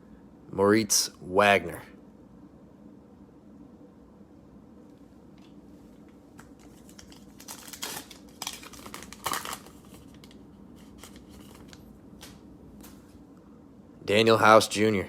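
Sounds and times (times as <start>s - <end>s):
plastic packaging crinkling: 6.4s - 12.4s.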